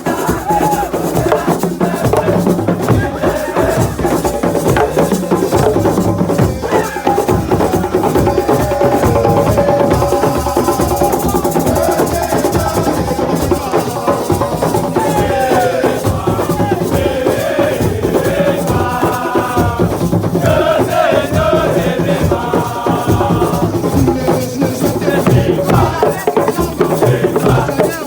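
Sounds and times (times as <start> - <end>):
dense drumming and percussion: 0.0 - 28.0
group singing: 0.0 - 28.0.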